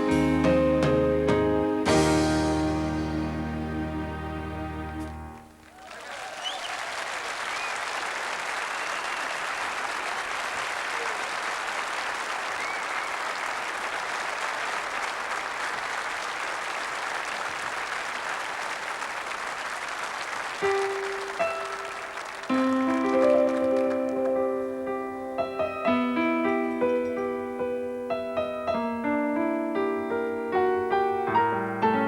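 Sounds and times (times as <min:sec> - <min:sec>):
piano playing: 0:00.0 - 0:05.6, 0:20.6 - 0:32.0
audience applauding: 0:05.4 - 0:24.7.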